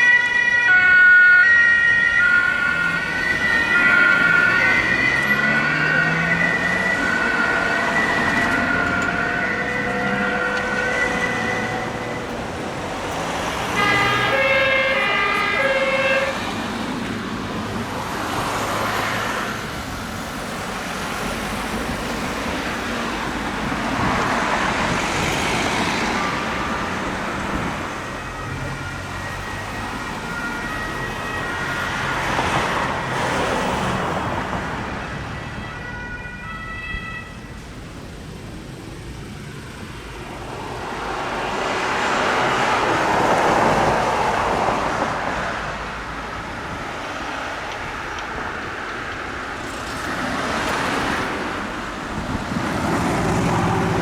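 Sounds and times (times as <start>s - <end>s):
two-tone emergency sirens: 0.0s - 54.0s
vehicles driving past: 0.0s - 54.0s
vehicle horn: 13.7s - 16.6s.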